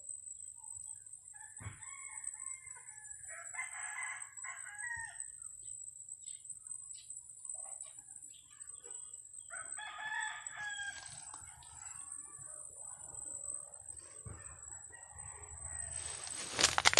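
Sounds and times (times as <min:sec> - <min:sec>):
rooster crowing: 0:01.6 - 0:05.2, 0:09.5 - 0:11.3, 0:14.2 - 0:16.9.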